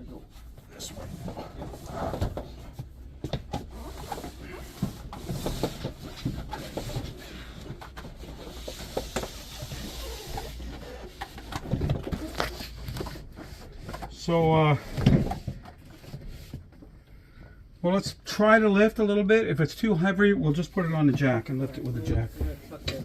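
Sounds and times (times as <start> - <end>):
refrigerator knocking and scraping: 21.1 - 23.0.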